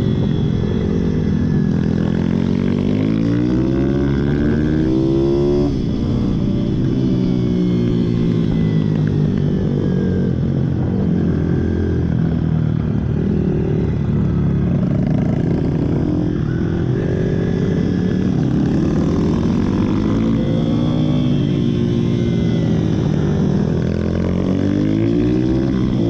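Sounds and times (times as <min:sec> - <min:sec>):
pit bike engines revving: 0:12.4 - 0:26.0.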